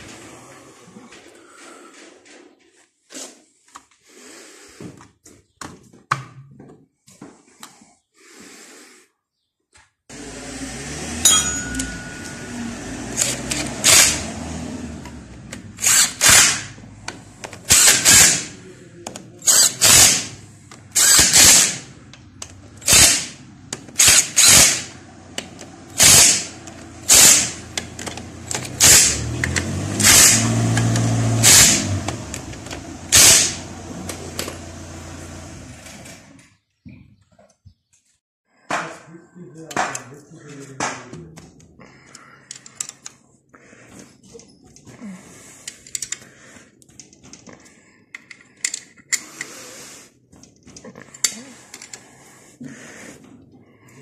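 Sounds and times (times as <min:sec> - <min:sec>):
power tool bursts: 0:10.1 - 0:14.4, 0:15.8 - 0:16.8, 0:17.7 - 0:18.6, 0:19.4 - 0:21.9, 0:22.8 - 0:23.4, 0:24.0 - 0:25.0, 0:26.0 - 0:27.6, 0:28.8 - 0:32.1, 0:33.1 - 0:33.7
machine hum: 0:10.1 - 0:16.0
metal parts clicking: 0:45.6 - 0:46.2, 0:46.9 - 0:49.5, 0:50.4 - 0:52.1.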